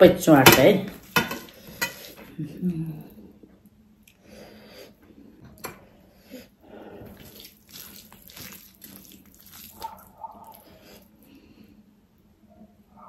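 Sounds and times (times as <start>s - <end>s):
wet chewing and mouth smacking: 7.0s - 11.2s
fingers squishing rice on plate: 7.1s - 11.1s.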